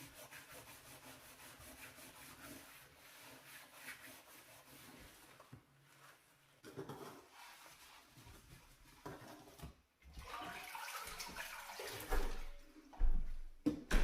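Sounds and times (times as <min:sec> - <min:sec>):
water splashing and sloshing: 0:06.9 - 0:14.0.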